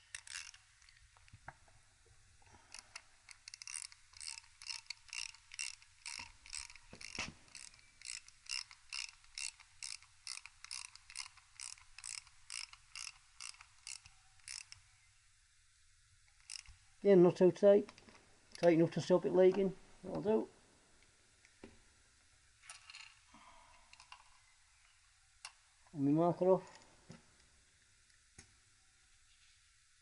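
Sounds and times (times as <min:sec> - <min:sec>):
ratchet wrench clicking: 0:00.0 - 0:00.6, 0:02.7 - 0:14.8, 0:16.4 - 0:16.8.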